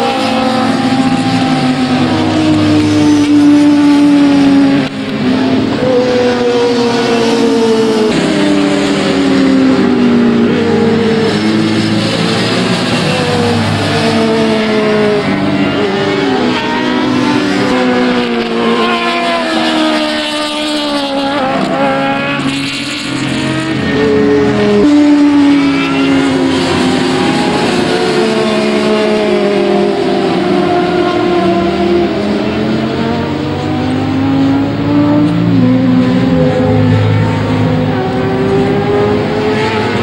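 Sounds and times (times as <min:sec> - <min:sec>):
racing motorcycle engines revving: 0:00.0 - 0:40.0.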